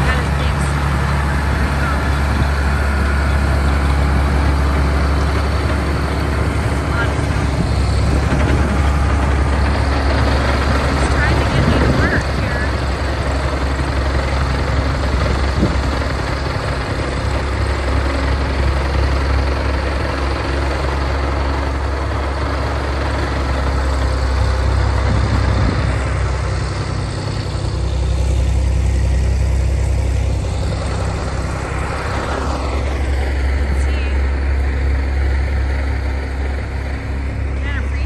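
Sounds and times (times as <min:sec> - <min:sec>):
continuous rushing noise: 0:00.0 - 0:18.0
tractor diesel engine drone: 0:00.0 - 0:38.0.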